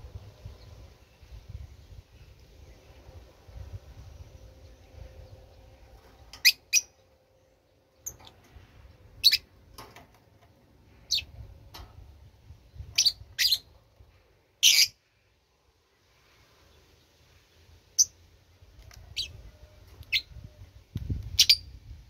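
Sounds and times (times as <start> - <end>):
bird chirping: 4.0 - 8.4, 9.2 - 9.5, 10.9 - 11.3, 12.7 - 13.8, 14.6 - 15.0.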